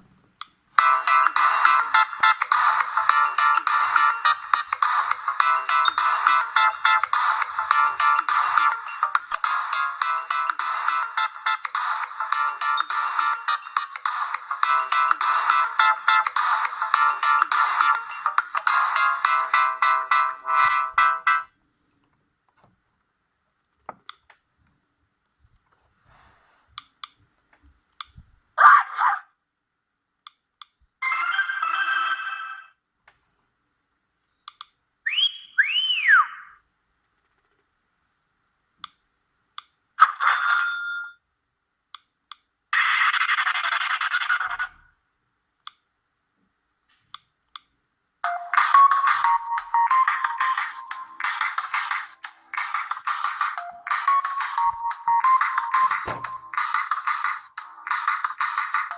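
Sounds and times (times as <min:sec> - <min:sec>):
telephone bell ringtone: 0:00.8 - 0:21.5
soft rustle: 0:25.3 - 0:28.4.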